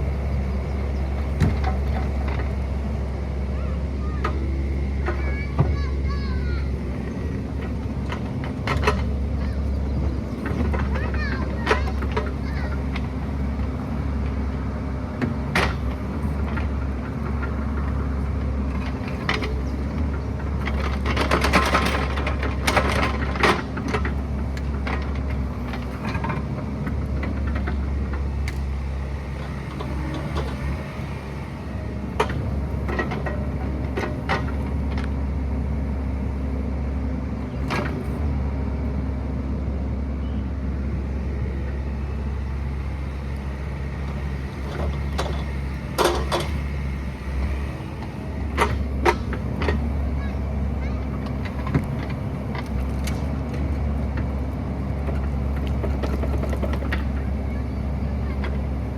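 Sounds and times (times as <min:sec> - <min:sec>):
diesel engine running: 0:00.0 - 0:58.9
knocks and rattles: 0:04.2 - 0:14.2, 0:15.2 - 0:35.2, 0:44.0 - 0:58.9.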